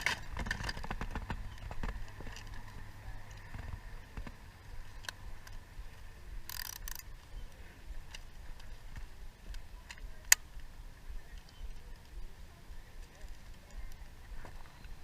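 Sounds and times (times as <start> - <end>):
plastic objects clicking: 6.5 - 7.1.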